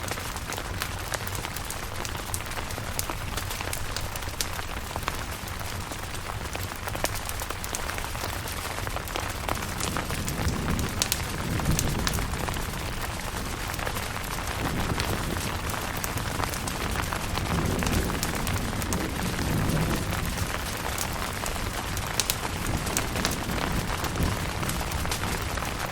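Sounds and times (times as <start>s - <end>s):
rain on tent: 0.0s - 25.9s.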